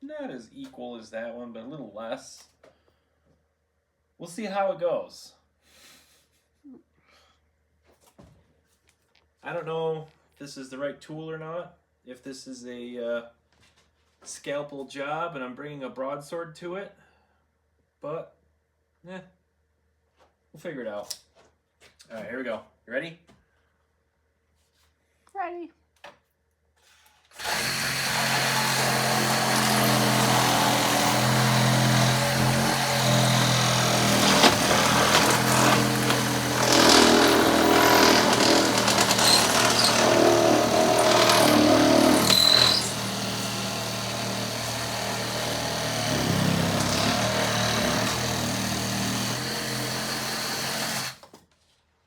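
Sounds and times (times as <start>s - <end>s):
power tool cutting foam: 27.3s - 51.4s.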